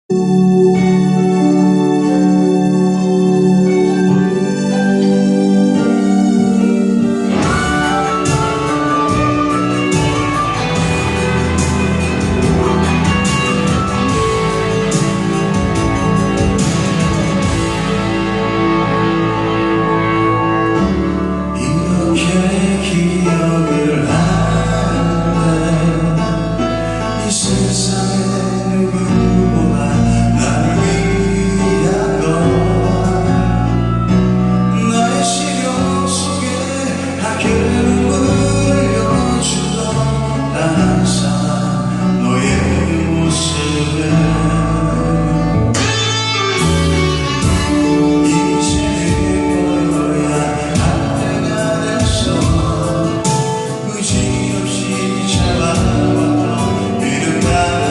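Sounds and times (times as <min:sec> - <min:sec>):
guitar: 0:00.0 - 0:57.9
person singing: 0:00.0 - 0:57.9
band playing pop-rock live: 0:00.1 - 0:57.9.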